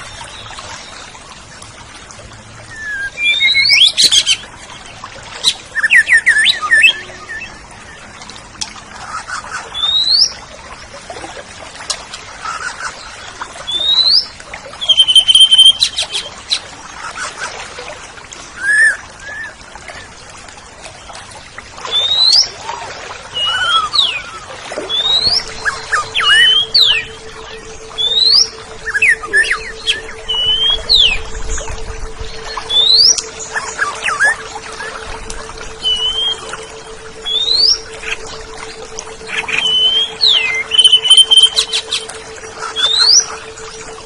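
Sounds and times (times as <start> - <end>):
bird singing whistled phrases: 2.7 - 4.4, 5.7 - 7.6, 13.7 - 16.2, 23.4 - 44.0.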